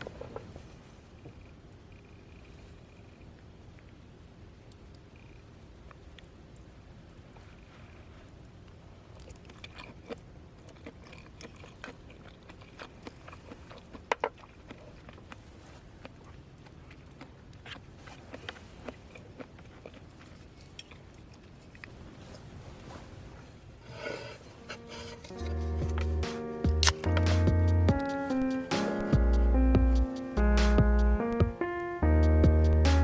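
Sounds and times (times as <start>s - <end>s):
faint clicks and crackles: 0.0s - 23.1s
low steady rumble: 19.0s - 33.0s.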